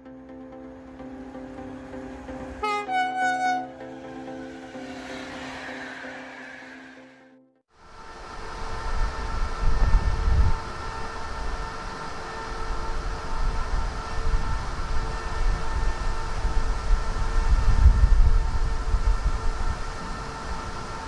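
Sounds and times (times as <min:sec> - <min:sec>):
train rumbling: 0:00.8 - 0:07.2, 0:07.8 - 0:21.0
steady electric whine: 0:07.8 - 0:21.0.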